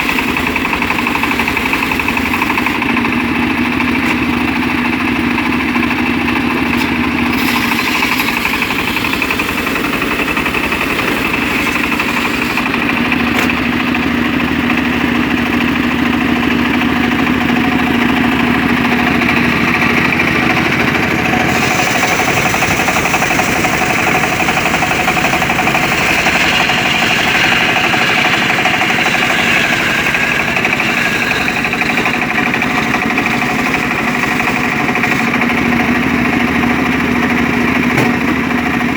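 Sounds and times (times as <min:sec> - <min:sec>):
circular saw ripping wood: 0:06.7 - 0:13.8, 0:21.4 - 0:35.8.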